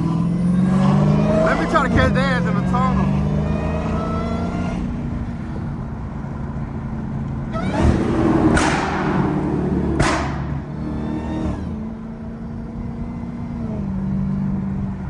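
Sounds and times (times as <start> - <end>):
car engine accelerating hard: 0.0 - 15.0
loud exhaust burst: 7.6 - 11.7.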